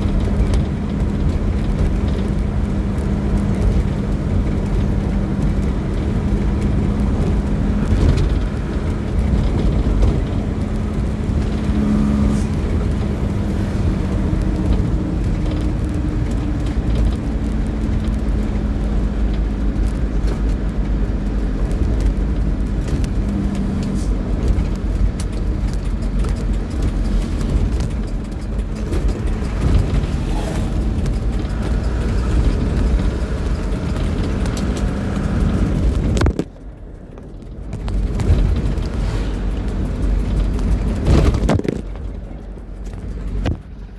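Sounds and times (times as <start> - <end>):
motor vehicle engine rumbling: 0.0 - 43.9.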